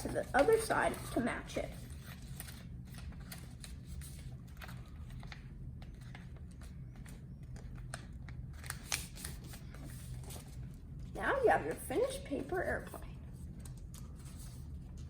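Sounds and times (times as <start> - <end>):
paper being folded and creased: 0.0 - 10.8
low steady hum: 0.0 - 15.0.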